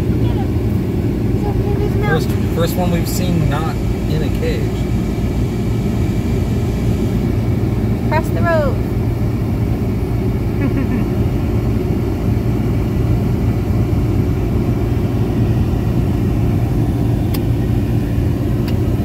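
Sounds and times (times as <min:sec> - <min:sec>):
car road and engine rumble: 0:00.0 - 0:19.0.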